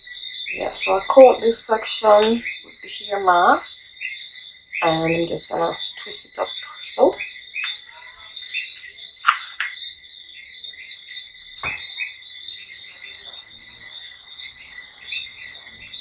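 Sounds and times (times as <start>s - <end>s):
insects chirping: 0.0s - 16.0s
sharp clicks: 8.5s - 9.8s.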